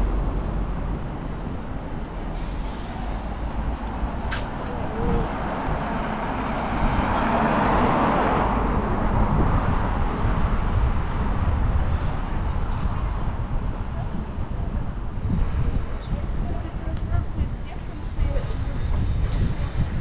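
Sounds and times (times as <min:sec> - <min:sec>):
vehicle passing close by: 0:00.0 - 0:12.2
low traffic rumble: 0:00.0 - 0:20.0.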